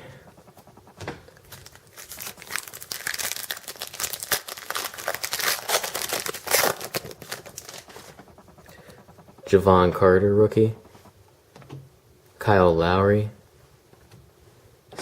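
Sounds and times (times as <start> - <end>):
plastic wrapper crinkling: 1.6 - 7.8.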